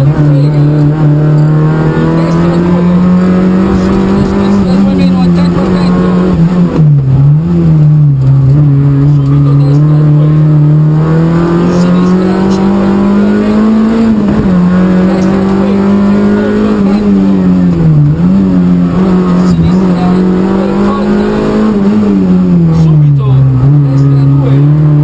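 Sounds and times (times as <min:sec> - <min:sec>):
rally car engine at high revs: 0:00.0 - 0:25.0.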